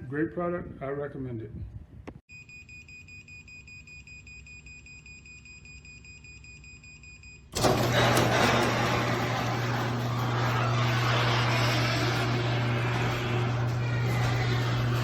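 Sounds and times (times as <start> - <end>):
rapid electronic warning beep: 2.3 - 7.5
garage door opener motor: 7.5 - 15.0.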